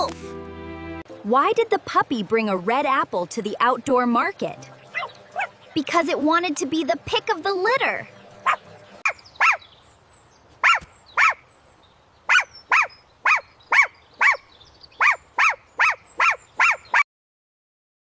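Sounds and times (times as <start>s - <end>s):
puppy yipping: 4.9s - 5.6s, 8.4s - 9.6s, 10.6s - 11.4s, 12.3s - 14.4s, 15.0s - 17.0s.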